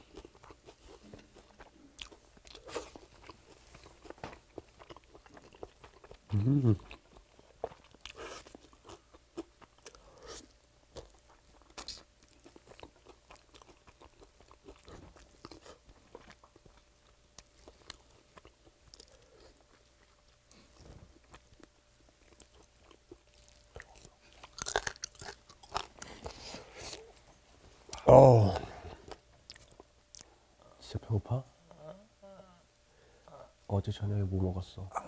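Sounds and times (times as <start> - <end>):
crunchy chewing: 0.0 - 27.3.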